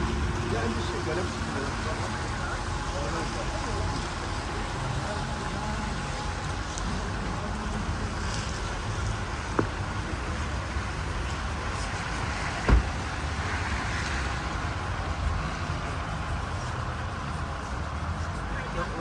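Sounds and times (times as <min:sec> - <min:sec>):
city street traffic rumble: 0:00.0 - 0:19.0
loud thump: 0:12.6 - 0:13.0.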